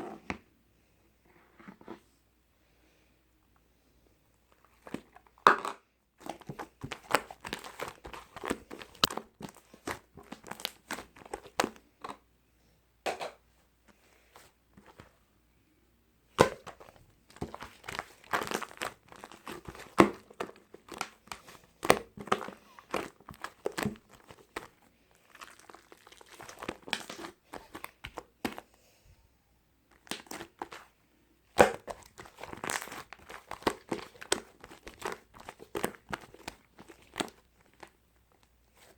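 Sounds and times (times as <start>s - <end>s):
crinkling and crumpling: 4.5s - 5.5s, 6.2s - 12.2s, 16.3s - 28.7s, 29.9s - 38.9s.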